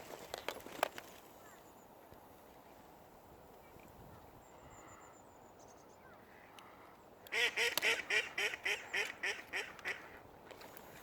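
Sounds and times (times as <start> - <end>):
duck quacking: 7.3 - 10.0.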